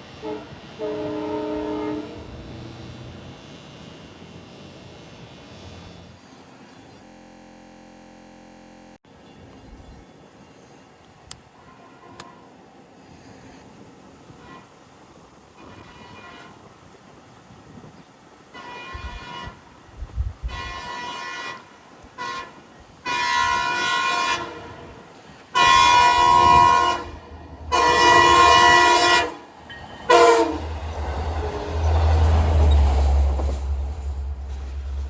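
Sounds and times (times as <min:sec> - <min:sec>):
low rumble of train passing: 0:00.0 - 0:07.1, 0:09.1 - 0:35.0
train horn blasts: 0:00.1 - 0:02.6, 0:11.6 - 0:12.5, 0:14.2 - 0:14.9, 0:15.6 - 0:16.7, 0:18.5 - 0:33.7.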